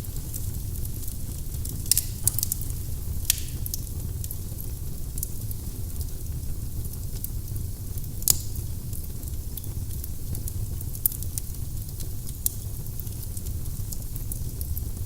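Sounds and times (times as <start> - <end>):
fireplace fire crackling: 0.0 - 15.0
loud pop of burning wood: 1.8 - 3.8.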